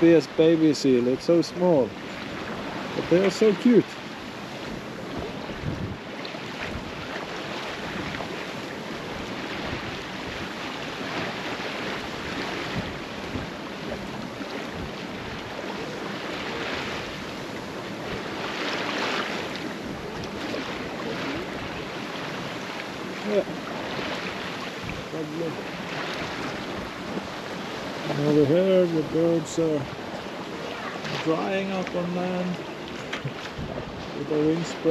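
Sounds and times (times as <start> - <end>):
water rushing along hull: 0.0 - 34.9
wind on microphone: 1.8 - 34.9.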